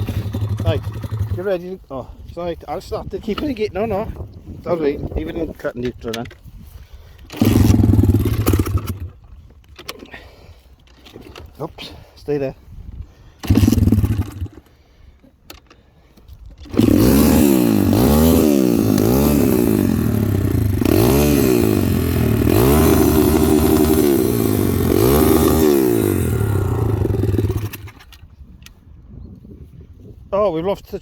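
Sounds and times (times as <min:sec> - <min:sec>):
small motorbike engine revving: 0:00.0 - 0:01.5, 0:07.3 - 0:09.2, 0:13.4 - 0:14.7, 0:16.6 - 0:28.2.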